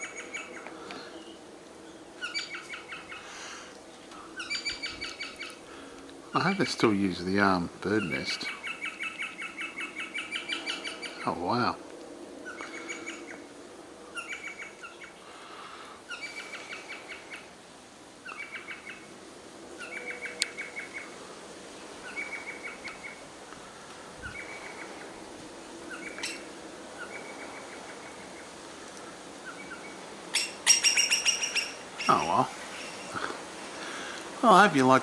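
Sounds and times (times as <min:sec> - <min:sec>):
small bird chattering trills: 0:04.4 - 0:05.6, 0:07.6 - 0:11.5, 0:18.2 - 0:19.0, 0:25.9 - 0:28.5, 0:29.4 - 0:33.2.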